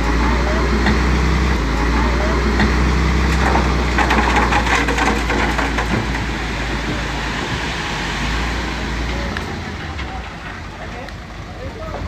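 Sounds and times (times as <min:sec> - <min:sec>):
diesel engine rumbling: 0:00.0 - 0:12.0
knocks and rattles: 0:02.4 - 0:07.1.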